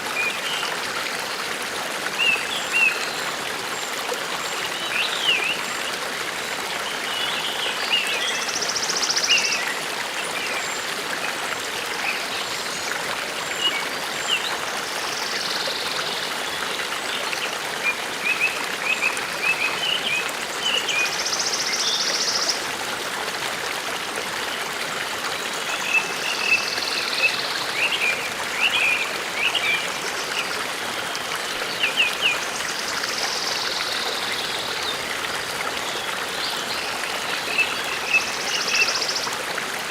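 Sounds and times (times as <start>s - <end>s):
forest stream running: 0.0s - 39.9s
songbird song phrase: 25.4s - 30.6s, 31.3s - 39.3s.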